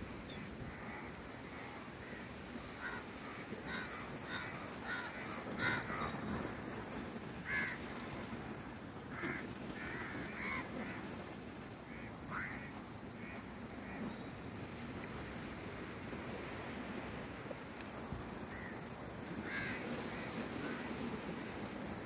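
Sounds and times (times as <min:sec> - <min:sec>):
wind or surf noise: 0:00.0 - 0:22.0
crows cawing: 0:00.7 - 0:06.3, 0:07.4 - 0:07.9, 0:09.1 - 0:11.0, 0:11.9 - 0:13.4, 0:18.5 - 0:18.8, 0:19.4 - 0:21.0.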